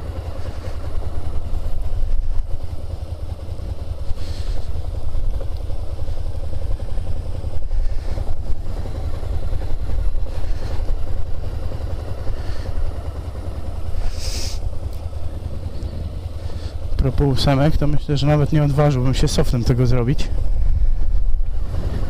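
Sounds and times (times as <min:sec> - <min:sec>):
motorcycle engine at low revs: 0:00.0 - 0:22.0
brief hiss: 0:14.0 - 0:14.6.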